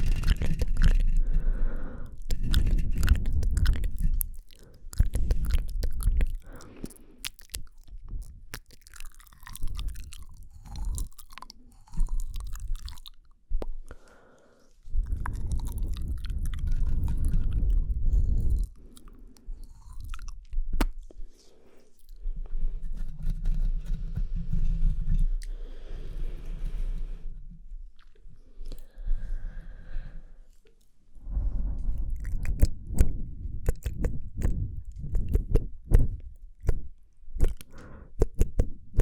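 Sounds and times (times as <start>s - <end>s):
mouth clicks and smacks: 0.0s - 14.1s, 14.8s - 22.2s, 30.5s - 39.0s.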